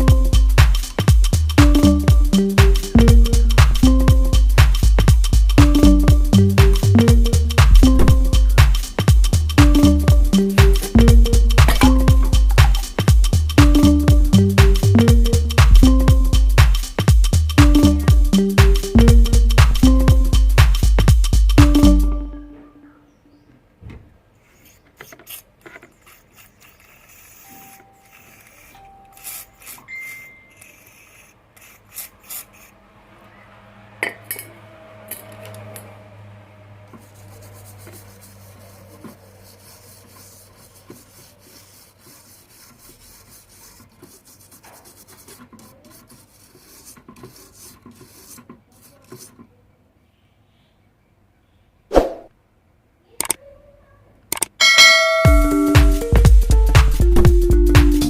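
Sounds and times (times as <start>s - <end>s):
light scraping and rubbing: 24.3s - 32.8s, 36.8s - 49.6s
clicks and taps of parts: 53.2s - 53.4s, 54.3s - 54.6s.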